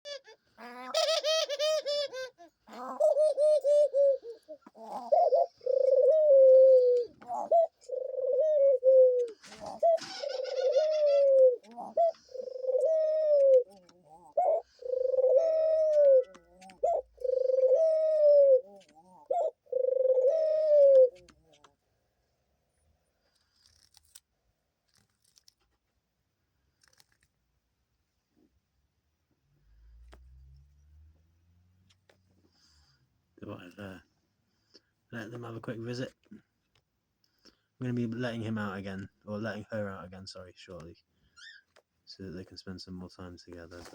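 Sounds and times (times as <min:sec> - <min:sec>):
doves cooing: 0:00.1 - 0:21.8.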